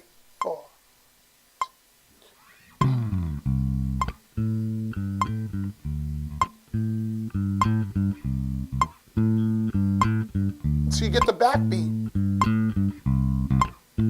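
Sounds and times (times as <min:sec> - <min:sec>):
bass guitar riff: 0:02.8 - 0:14.0
guitar riff: 0:02.8 - 0:14.0
metronome clicking: 0:02.9 - 0:06.6, 0:07.2 - 0:13.8.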